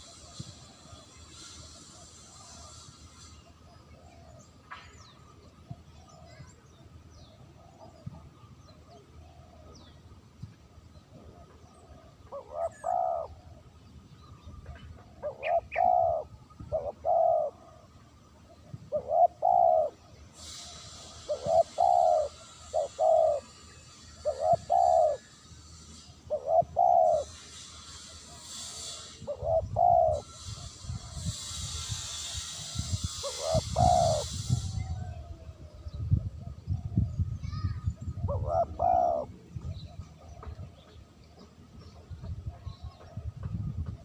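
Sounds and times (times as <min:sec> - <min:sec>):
dove cooing: 0:11.1 - 0:13.6, 0:14.6 - 0:17.9, 0:18.8 - 0:37.0, 0:38.1 - 0:40.6
high hiss: 0:19.4 - 0:35.4.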